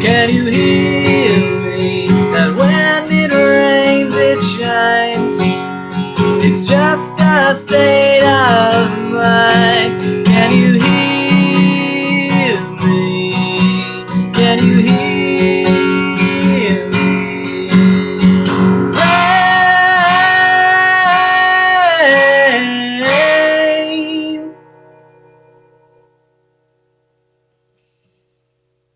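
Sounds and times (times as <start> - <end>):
acoustic guitar strummed: 0.0 - 28.9.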